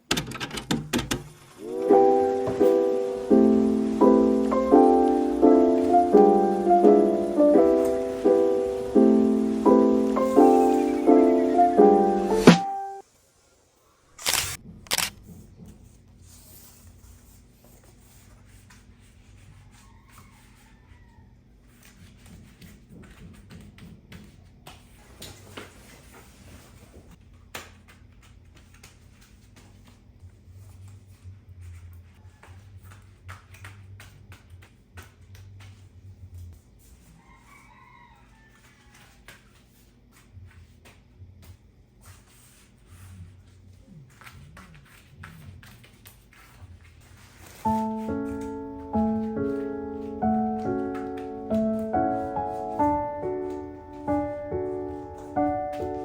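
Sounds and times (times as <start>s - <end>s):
distant rooster crowing: 1.6s - 13.0s, 19.5s - 21.6s, 32.2s - 32.8s, 37.0s - 39.6s, 52.4s - 54.3s.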